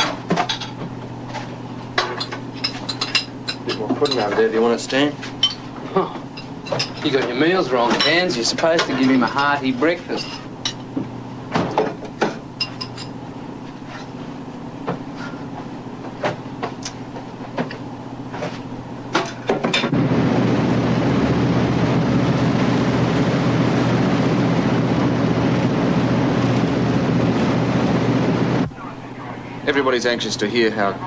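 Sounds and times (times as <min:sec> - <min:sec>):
ship engines droning: 0:00.0 - 0:31.0
dishes and cutlery clinking: 0:02.0 - 0:04.5
low ship hum: 0:19.9 - 0:31.0.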